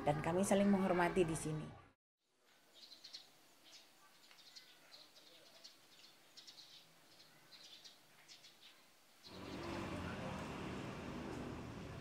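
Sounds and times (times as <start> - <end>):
small birds chirping: 2.5 - 10.1.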